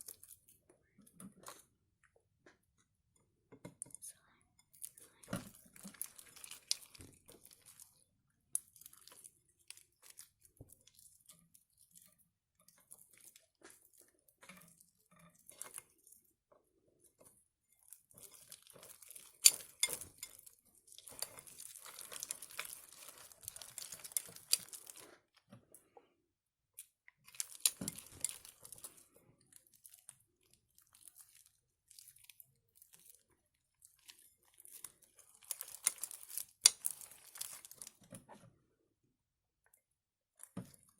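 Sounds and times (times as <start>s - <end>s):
slime crackling and crinkling: 4.8s - 25.4s, 26.8s - 38.1s.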